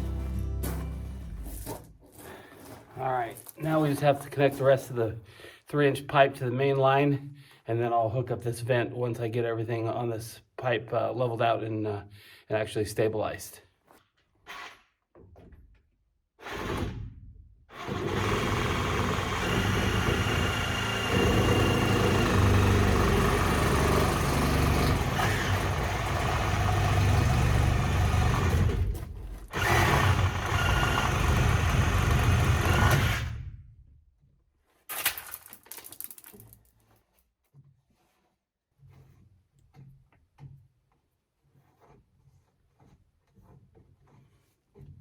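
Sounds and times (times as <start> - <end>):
power tool running: 17.7 - 28.9, 29.5 - 33.4.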